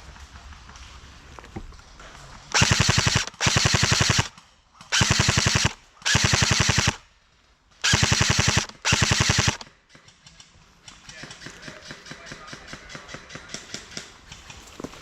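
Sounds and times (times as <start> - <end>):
airsoft rifle bursts: 2.5 - 7.1, 7.8 - 9.7.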